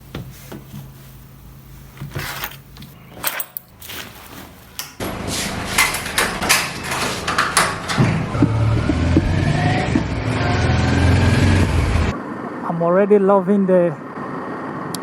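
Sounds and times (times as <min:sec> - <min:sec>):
clicks and knocks: 0:04.8 - 0:08.4
rapid clattering: 0:04.8 - 0:08.4.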